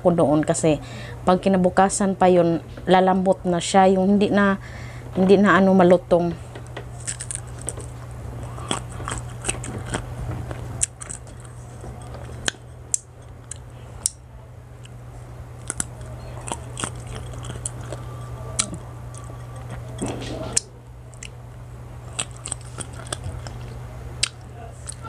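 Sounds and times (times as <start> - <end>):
steady low hum: 0.0 - 25.0
crunching and chewing: 6.7 - 14.2, 14.8 - 25.0.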